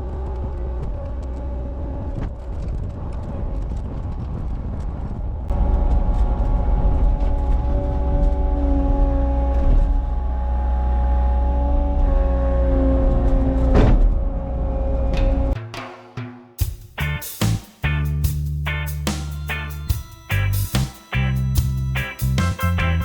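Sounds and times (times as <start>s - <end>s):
steady whine: 17.0s - 23.0s.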